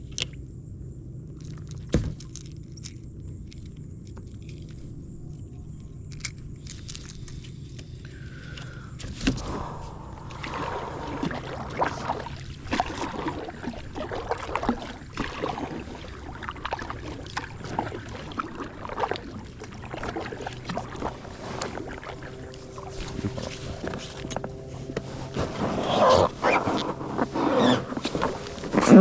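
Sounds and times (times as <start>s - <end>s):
steady low hum: 0.0s - 29.0s
paddle splashing in water: 8.4s - 29.0s.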